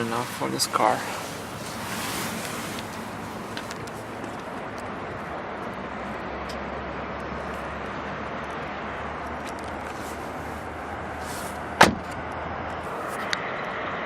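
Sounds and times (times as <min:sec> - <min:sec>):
car door shutting: 0:11.2 - 0:12.2.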